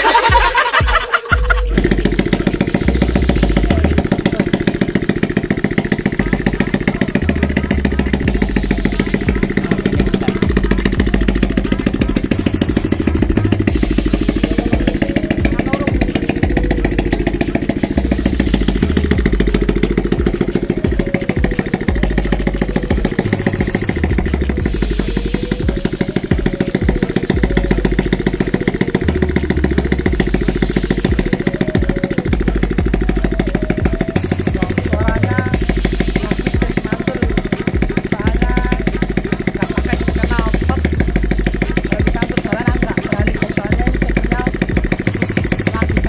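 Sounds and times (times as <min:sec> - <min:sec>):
motorcycle engine idling loudly: 0:00.0 - 0:46.0.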